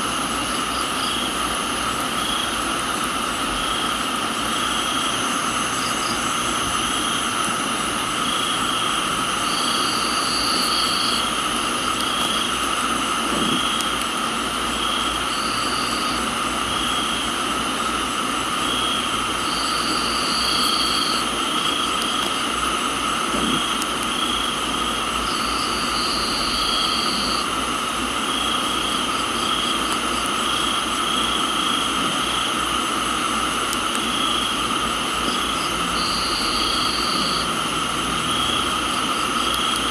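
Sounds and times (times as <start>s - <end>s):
crickets and insects trilling: 0.0s - 39.9s
rain hiss: 0.0s - 39.9s
high insect trill: 0.1s - 39.9s.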